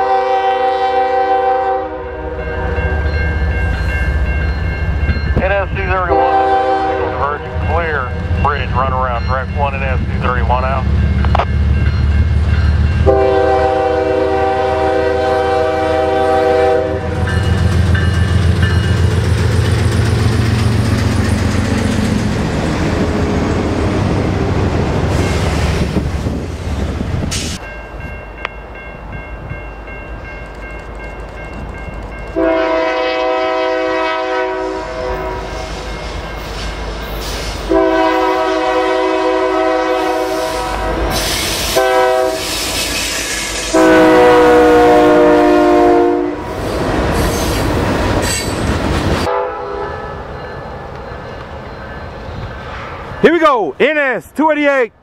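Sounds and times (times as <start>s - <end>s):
locomotive air horn: 0.0s - 3.0s, 6.0s - 7.6s, 13.0s - 17.4s, 32.4s - 35.9s, 37.4s - 46.7s, 49.2s - 50.2s.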